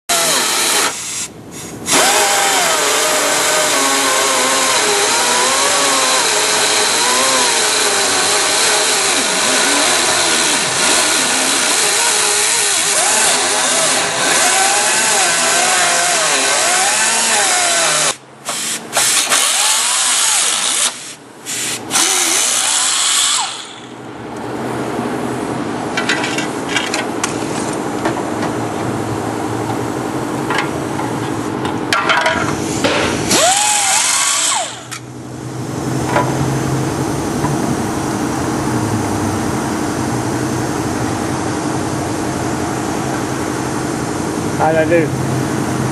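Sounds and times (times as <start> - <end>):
power tool on sheet metal: 0.1 - 24.0, 32.6 - 35.0.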